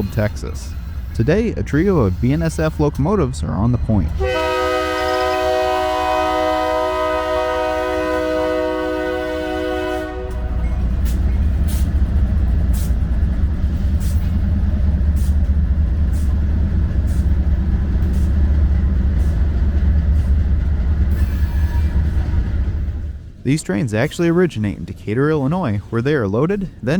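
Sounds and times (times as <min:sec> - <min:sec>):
diesel locomotive engine rumble: 0:00.0 - 0:26.9
locomotive air horn chord: 0:04.2 - 0:10.8.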